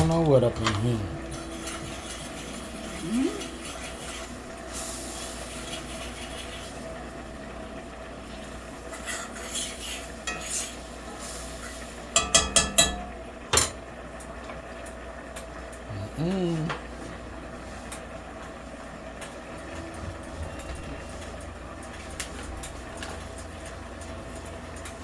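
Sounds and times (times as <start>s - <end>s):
faint sizzle: 0.0s - 25.0s
stirring in a pan: 1.3s - 7.0s, 8.2s - 13.1s
utensil clinking against pan: 12.2s - 13.8s.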